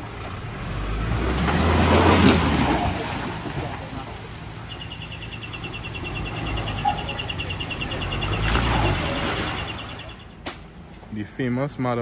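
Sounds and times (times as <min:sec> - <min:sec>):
off-road vehicle engine: 0:00.0 - 0:12.0
insect pulsing chirp: 0:04.7 - 0:10.4.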